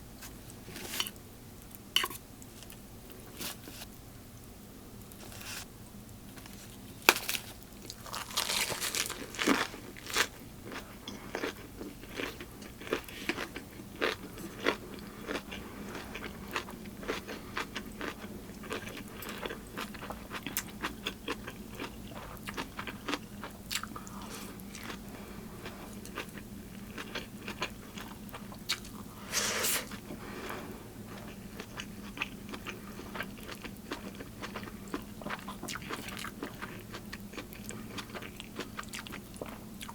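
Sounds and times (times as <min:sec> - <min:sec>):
small crackles: 0:05.0 - 0:10.4
crunchy bites and chewing: 0:06.3 - 0:25.1, 0:25.8 - 0:29.1, 0:31.2 - 0:39.9.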